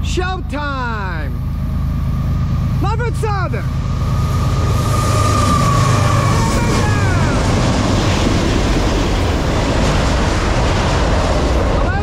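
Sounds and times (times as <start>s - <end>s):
diesel freight train passing: 0.0s - 12.0s
high tones dropping in pitch: 0.5s - 8.3s.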